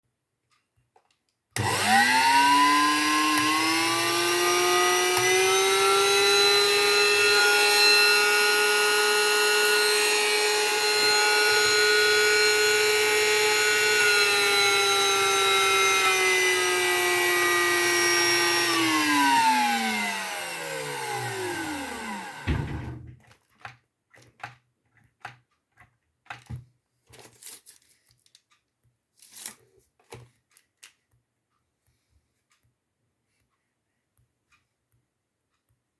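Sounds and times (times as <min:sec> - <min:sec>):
electric motor whine: 0:01.6 - 0:23.0.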